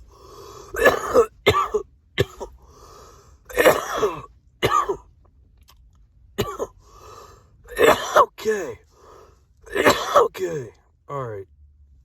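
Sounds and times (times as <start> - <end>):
raspy wheezing breaths: 0.0 - 0.8, 2.6 - 3.4, 6.8 - 7.6, 8.8 - 9.5
man coughing: 0.7 - 2.6, 3.5 - 5.0, 6.4 - 6.8, 7.7 - 8.8, 9.7 - 10.8.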